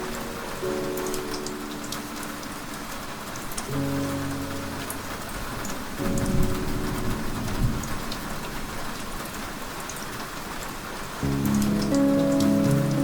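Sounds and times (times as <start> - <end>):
steady rain: 0.0 - 13.0
low rumble of thunder: 4.8 - 9.7.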